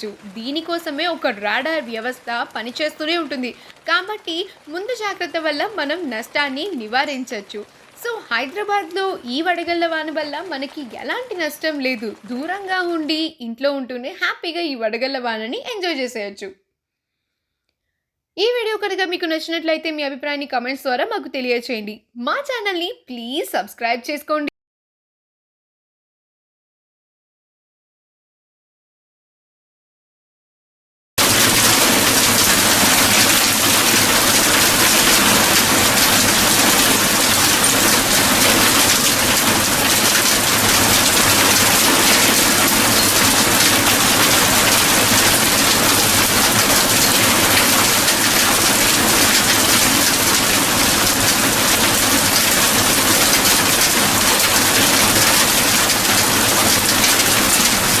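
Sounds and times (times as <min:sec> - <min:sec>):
heavy rain pouring: 0:00.0 - 0:13.3, 0:31.2 - 0:58.0.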